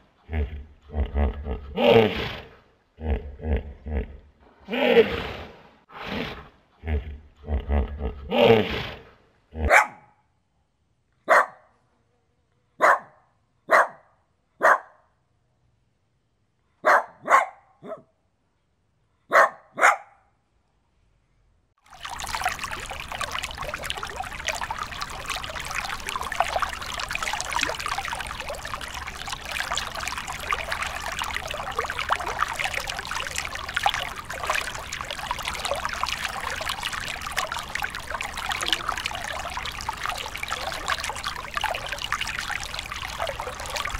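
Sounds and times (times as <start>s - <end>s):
running water hiss: 21.9s - 43.9s.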